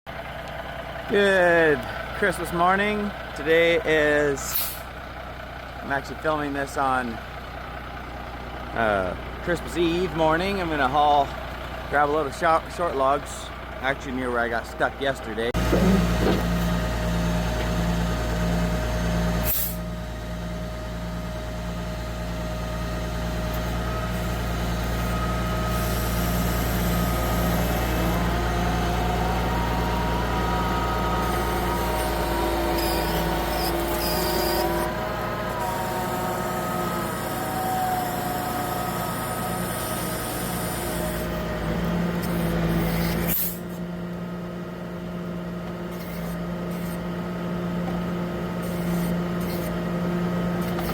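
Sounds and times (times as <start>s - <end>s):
truck engine running: 0.1s - 50.9s
pitched whine: 15.6s - 20.0s, 22.7s - 43.7s.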